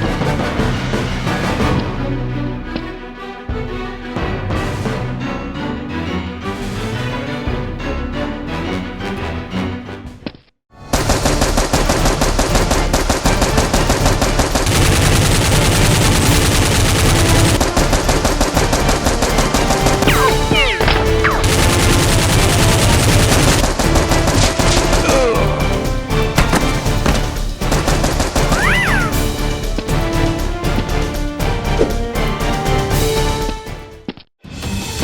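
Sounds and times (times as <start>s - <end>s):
automatic gunfire: 10.9s - 25.3s, 26.4s - 29.1s.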